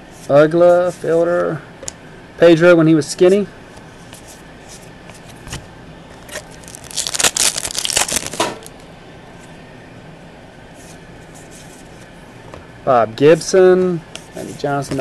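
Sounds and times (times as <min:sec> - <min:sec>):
pack wrapper crinkling: 0:06.2 - 0:08.8.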